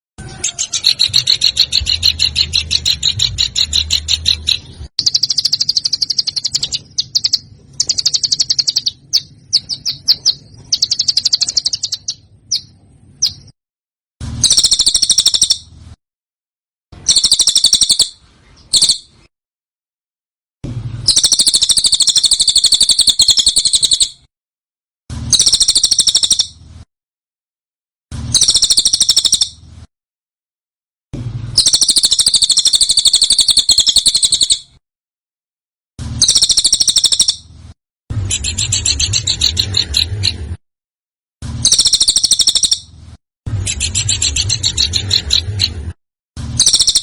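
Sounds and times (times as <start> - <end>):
small songbird trilling: 0.3 - 13.5, 14.4 - 15.6, 17.0 - 19.1, 21.1 - 24.2, 25.3 - 26.5, 28.4 - 29.6, 31.6 - 34.7, 36.2 - 37.4, 41.6 - 42.9, 46.6 - 47.0.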